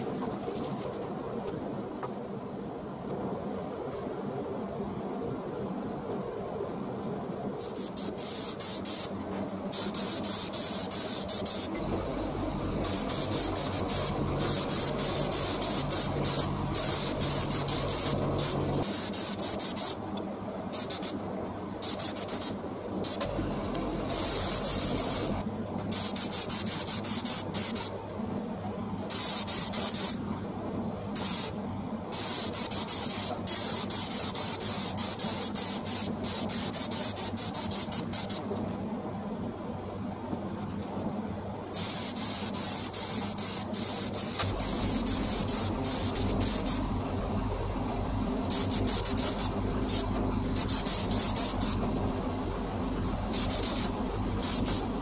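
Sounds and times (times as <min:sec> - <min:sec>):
paint spray hissing: 0:07.6 - 0:09.1, 0:09.7 - 0:20.0, 0:20.7 - 0:21.2, 0:21.8 - 0:27.9, 0:29.1 - 0:30.2, 0:31.2 - 0:38.4, 0:41.8 - 0:46.8, 0:48.5 - 0:51.9, 0:53.3 - 0:55.0
low hum: 0:11.7 - 0:18.8, 0:23.2 - 0:25.6, 0:44.4 - 0:55.0.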